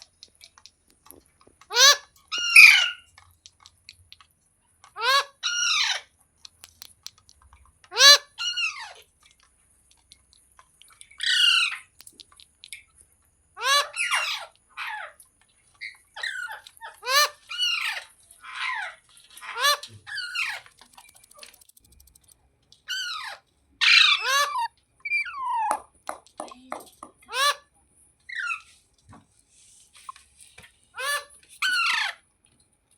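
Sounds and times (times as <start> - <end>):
parrot squawking: 1.7 - 3.1, 4.9 - 6.1, 7.9 - 9.0, 11.2 - 11.9, 13.6 - 15.2, 15.8 - 20.7, 22.9 - 25.8, 27.3 - 27.6, 28.3 - 28.7, 30.9 - 32.2.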